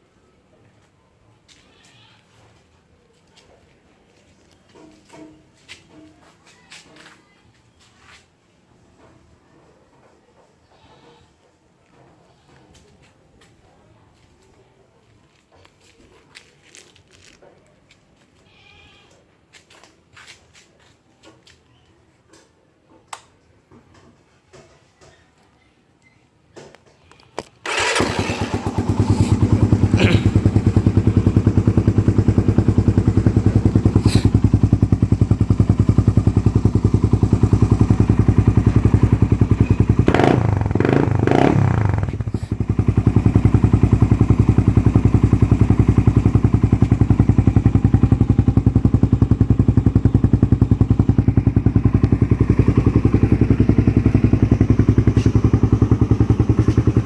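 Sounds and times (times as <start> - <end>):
motorcycle engine idling and revving: 27.6 - 57.0.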